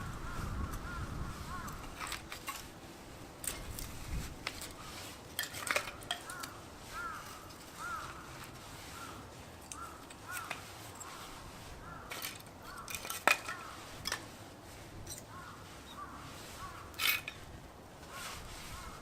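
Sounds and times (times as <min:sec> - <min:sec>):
rustling scrape: 0:00.0 - 0:19.0
crows cawing: 0:00.2 - 0:02.0, 0:06.2 - 0:13.9, 0:15.3 - 0:17.0, 0:18.1 - 0:19.0
clinks and knocks: 0:12.1 - 0:14.2.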